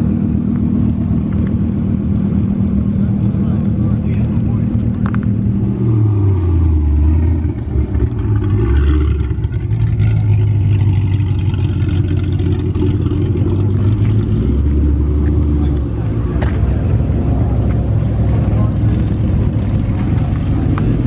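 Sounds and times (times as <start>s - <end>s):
car engine exhaust drone: 0.0s - 21.0s.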